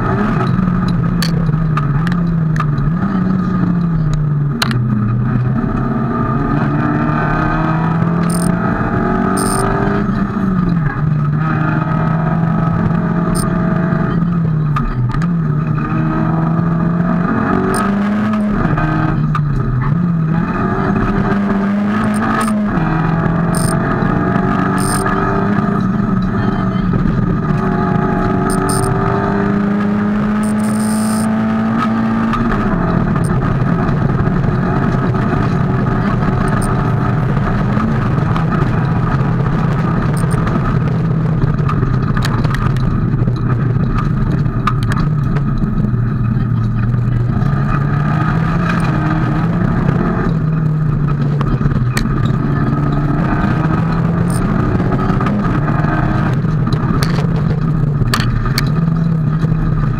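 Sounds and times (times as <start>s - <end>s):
rally car engine revving: 0.0s - 59.9s
sharp clicks: 8.2s - 8.6s, 9.3s - 9.7s, 23.6s - 23.8s, 24.7s - 25.2s, 28.5s - 29.0s, 30.4s - 31.3s, 40.2s - 40.4s.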